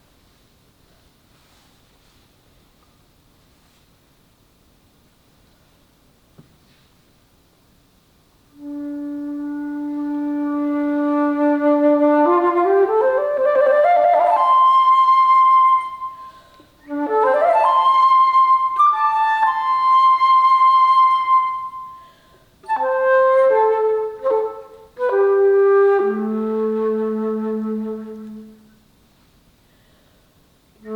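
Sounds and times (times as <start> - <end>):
alto flute playing: 8.5 - 28.8.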